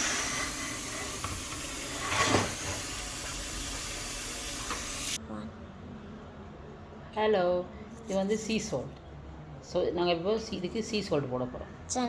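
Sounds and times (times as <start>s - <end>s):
tap water running into sink: 0.0s - 5.2s.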